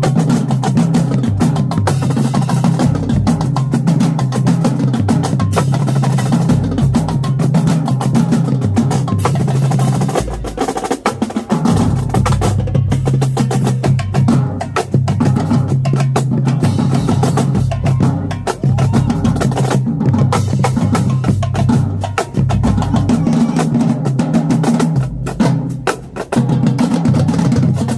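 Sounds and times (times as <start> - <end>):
tenor and bass drums: 0.0 - 27.9.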